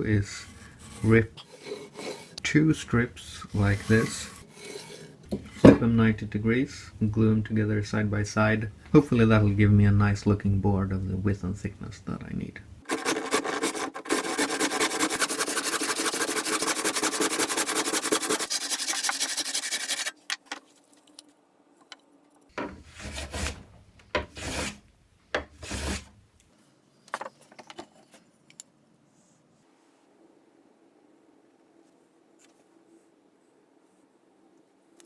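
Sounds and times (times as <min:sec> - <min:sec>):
hand saw rasping through wood: 0:12.9 - 0:20.2
wood knocks and handling: 0:20.2 - 0:21.2, 0:27.1 - 0:28.2.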